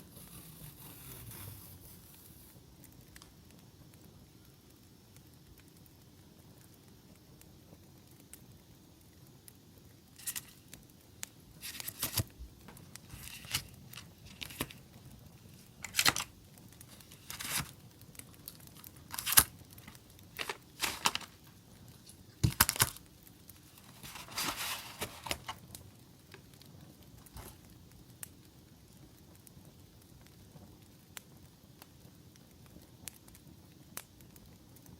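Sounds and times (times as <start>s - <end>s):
paper rustling and tearing: 0.0s - 2.6s, 10.2s - 10.6s, 11.6s - 12.3s, 13.0s - 14.8s, 15.4s - 16.3s, 16.9s - 17.8s, 18.8s - 21.4s, 22.0s - 23.0s, 23.7s - 25.6s
faint campfire crackle: 0.0s - 34.9s.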